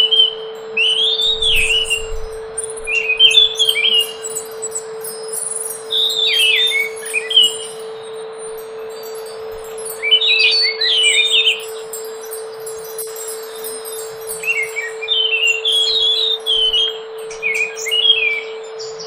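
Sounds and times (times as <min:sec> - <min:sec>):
steady low hum: 0:00.0 - 0:19.0
thrush singing whistled notes: 0:00.0 - 0:19.0.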